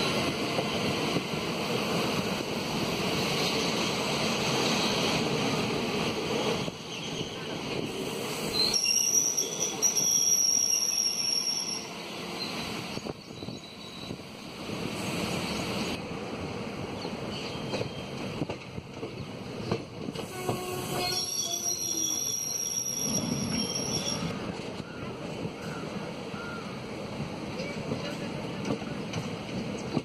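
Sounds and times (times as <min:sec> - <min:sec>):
passing train: 0:00.0 - 0:30.0
train wheels rumbling on track: 0:00.0 - 0:30.0.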